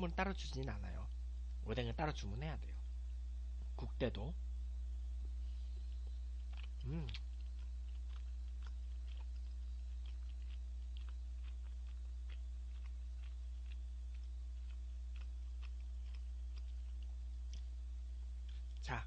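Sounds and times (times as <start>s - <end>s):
low electrical hum: 0.0s - 19.0s
man chewing: 5.3s - 18.9s.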